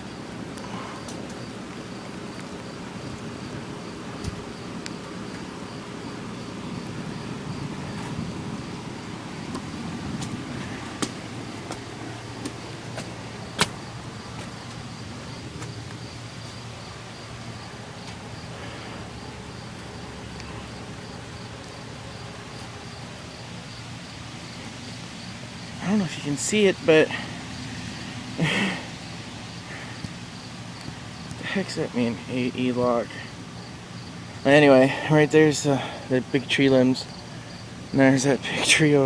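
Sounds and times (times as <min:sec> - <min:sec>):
low steady rumble: 0:00.0 - 0:28.5
insects chirping: 0:00.0 - 0:39.0.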